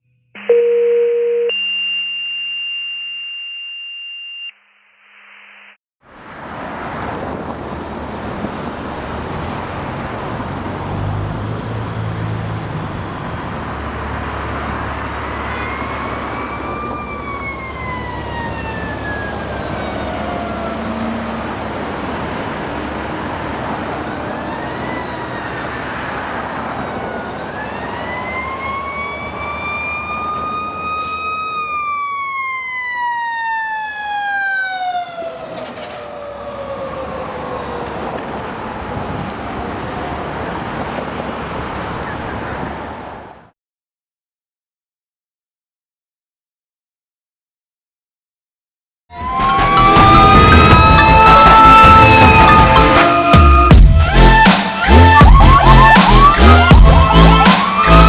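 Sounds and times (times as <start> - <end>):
siren wailing: 0.4 - 4.5, 11.9 - 41.3, 49.1 - 58.0
fire engine diesel engine running: 7.3 - 31.6.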